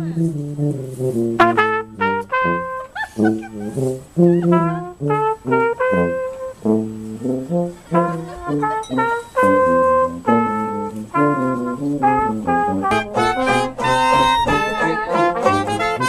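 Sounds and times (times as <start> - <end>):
brass instrument melody: 0.0 - 16.0.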